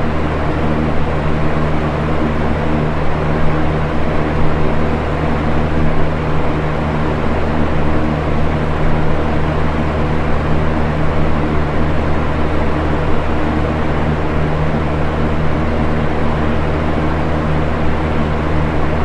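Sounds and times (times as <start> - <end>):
fan blades rushing air: 0.0 - 19.0
low motor hum: 0.0 - 19.0.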